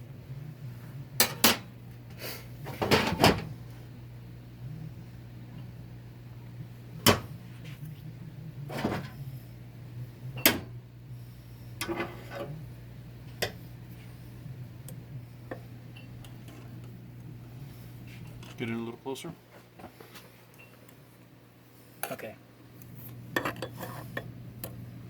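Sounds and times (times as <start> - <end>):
steady low hum: 0.0 - 25.0
metal scraping: 11.8 - 12.6.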